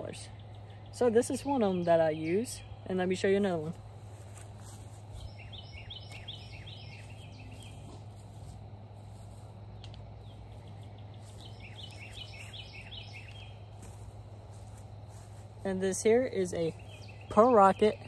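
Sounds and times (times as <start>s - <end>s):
steady low hum: 0.0s - 18.0s
songbird singing high notes: 11.0s - 13.6s.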